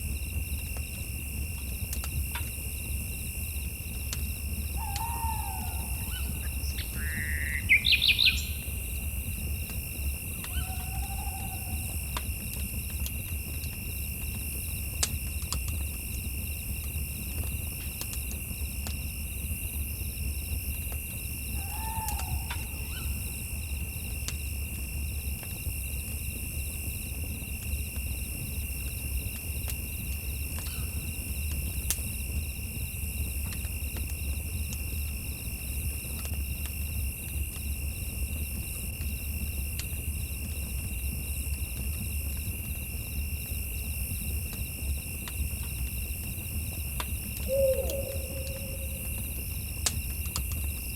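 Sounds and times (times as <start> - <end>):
campfire crackling and popping: 0.0 - 10.8, 11.6 - 47.5, 48.9 - 50.9
insects trilling: 2.2 - 15.6, 19.5 - 24.5, 42.3 - 50.9
short bird call: 47.5 - 49.1.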